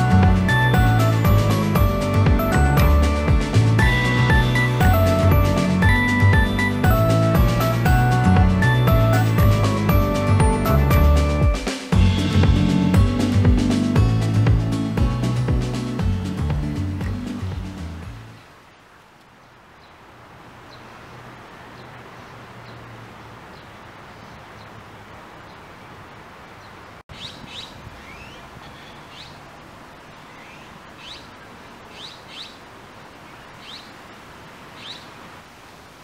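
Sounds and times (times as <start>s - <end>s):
outdoor hiss: 11.6s - 36.0s
small birds chirping: 19.4s - 35.2s.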